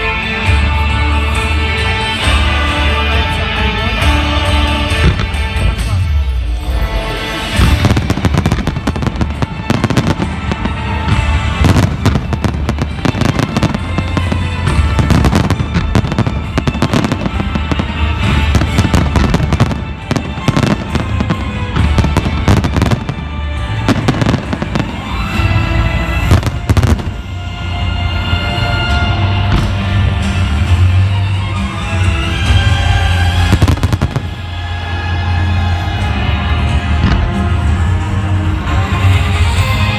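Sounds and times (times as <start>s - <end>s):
fireworks bangs: 7.5s - 27.3s, 33.3s - 34.6s.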